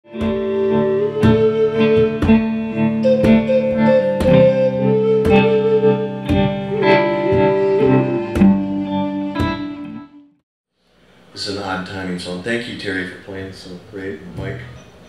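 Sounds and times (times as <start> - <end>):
guitar playing chords: 0.1 - 10.4.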